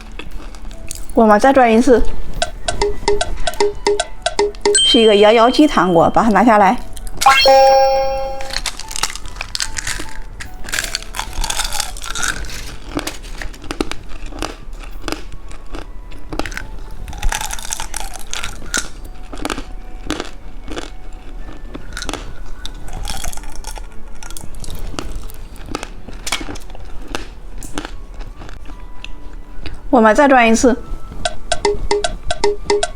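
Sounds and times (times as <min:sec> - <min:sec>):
candy crunching and chewing: 0:00.0 - 0:01.5, 0:08.5 - 0:29.8
plastic wrapper crinkling: 0:08.5 - 0:14.3.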